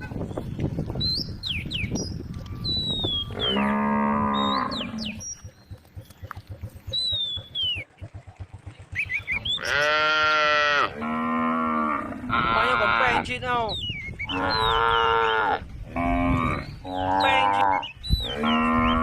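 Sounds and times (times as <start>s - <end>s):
cow mooing: 3.3s - 5.2s, 9.6s - 13.2s, 14.3s - 19.0s.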